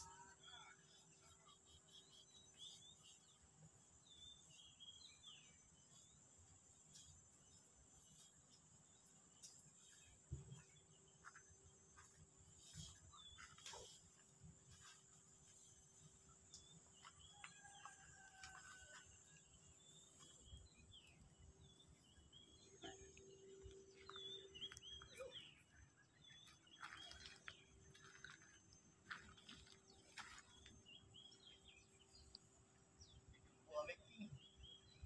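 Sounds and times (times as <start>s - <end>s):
faint bird chirps: 19.8s - 32.4s.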